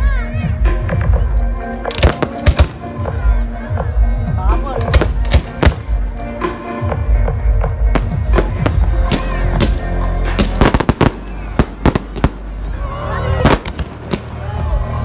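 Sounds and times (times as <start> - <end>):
loud music: 0.0 - 15.0
fireworks bangs and cracks: 1.9 - 3.3, 4.8 - 6.1, 7.8 - 12.7, 13.4 - 14.6.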